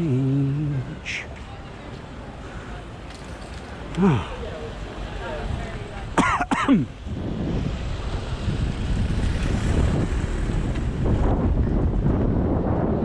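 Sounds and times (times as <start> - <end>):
wind buffeting microphone: 6.9 - 13.0.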